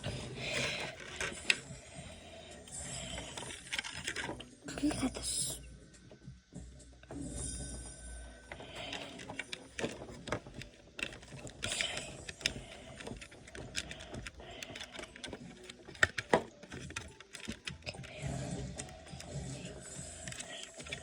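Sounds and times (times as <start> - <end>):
plastic clicks: 0.0 - 1.8, 3.0 - 4.6, 8.5 - 21.0
plastic packaging rustling: 0.0 - 2.1, 3.0 - 4.5, 8.5 - 18.1.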